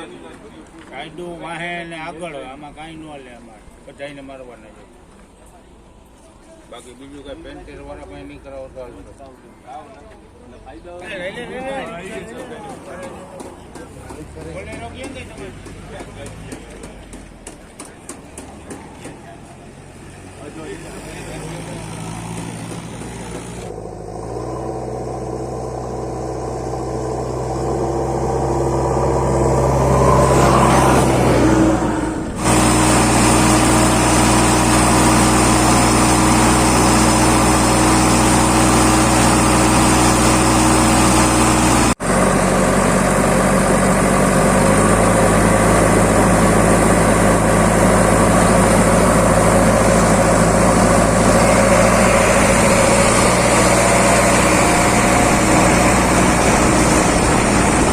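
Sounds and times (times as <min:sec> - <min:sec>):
backhoe diesel engine running: 0:11.9 - 0:57.9.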